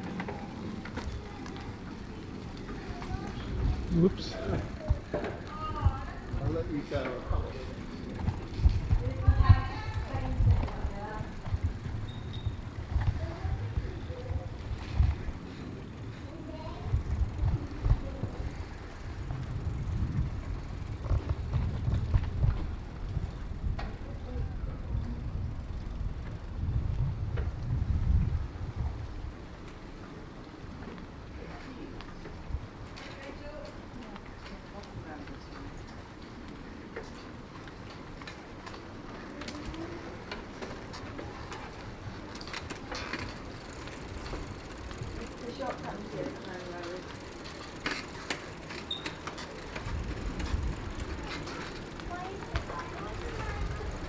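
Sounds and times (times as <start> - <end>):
bicycle wheels rumbling on road: 0.0 - 54.0
sharp rattles and clicks: 2.5 - 27.5, 37.8 - 54.0
wind on microphone: 8.2 - 15.5, 16.8 - 29.5.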